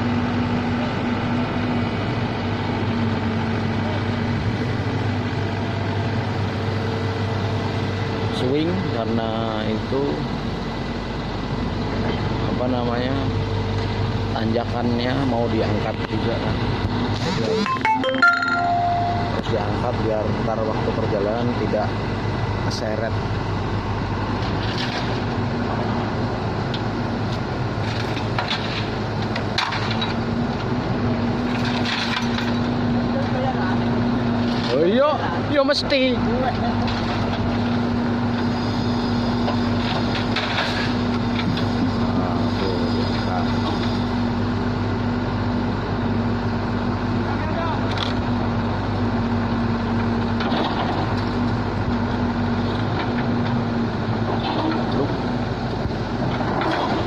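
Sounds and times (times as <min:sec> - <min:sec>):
diesel engine idling: 0:00.0 - 0:24.6
diesel engine running: 0:00.0 - 0:57.0.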